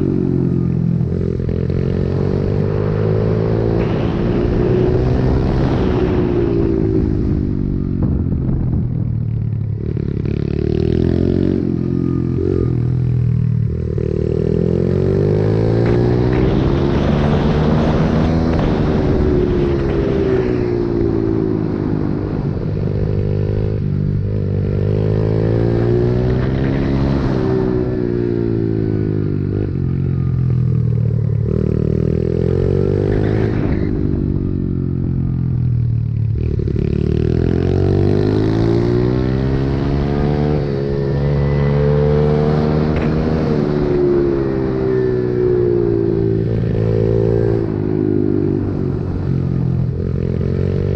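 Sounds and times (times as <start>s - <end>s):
small motorcycle engine revving: 36.3s - 50.9s.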